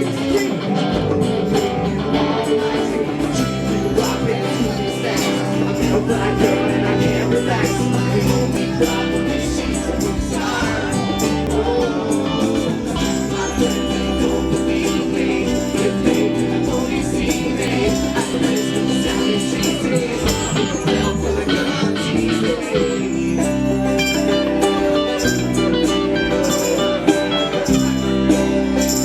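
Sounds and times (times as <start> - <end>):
jangling tambourine: 0.0 - 29.0
rock band playing: 0.0 - 29.0.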